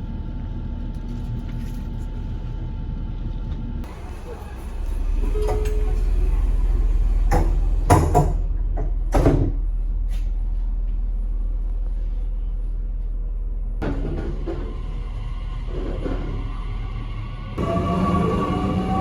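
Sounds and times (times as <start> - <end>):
train rumbling from inside: 0.0 - 19.0.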